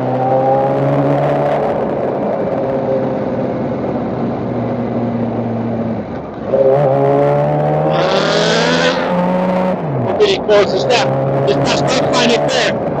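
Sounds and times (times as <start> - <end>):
motorcycle engine accelerating: 7.5 - 10.0.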